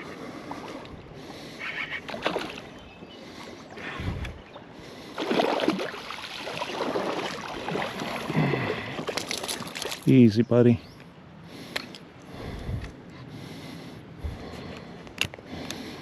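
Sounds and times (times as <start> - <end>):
water sloshing and splashing: 0.0 - 10.2.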